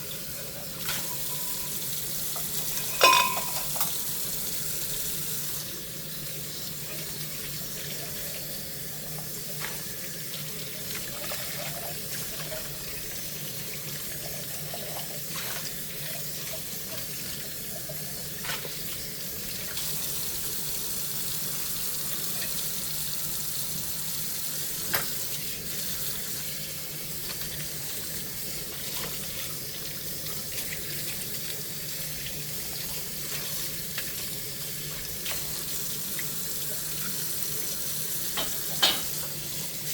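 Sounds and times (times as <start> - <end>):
dishes clinking: 0.8 - 1.8, 2.4 - 4.1, 38.4 - 39.2
tap running into sink: 0.8 - 4.0, 24.8 - 25.4, 38.3 - 39.4.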